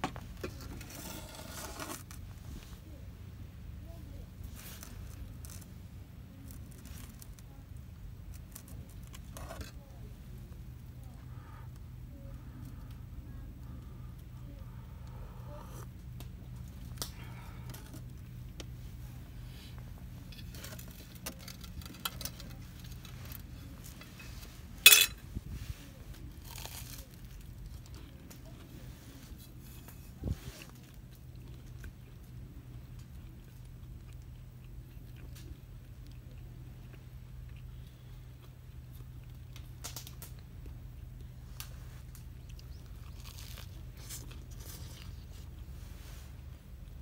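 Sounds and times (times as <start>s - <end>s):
rustles and clicks of handling: 0.0s - 3.1s, 3.9s - 14.8s, 15.8s - 47.0s
steady low rumble: 2.0s - 47.0s.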